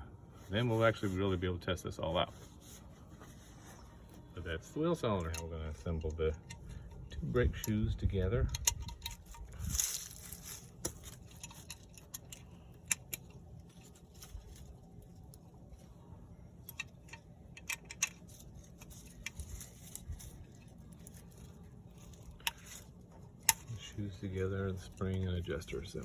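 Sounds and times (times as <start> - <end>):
low steady rumble: 0.0 - 26.0
metallic clicks and clinks: 5.0 - 14.3, 16.6 - 26.0.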